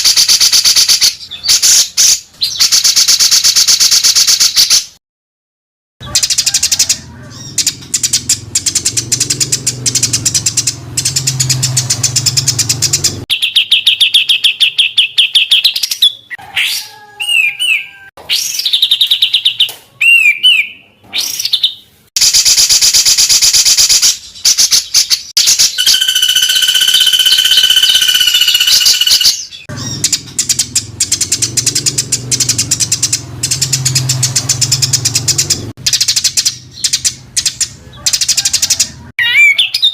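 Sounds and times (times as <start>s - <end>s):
songbird chattering and trilling: 6.0s - 16.4s, 23.6s - 39.9s.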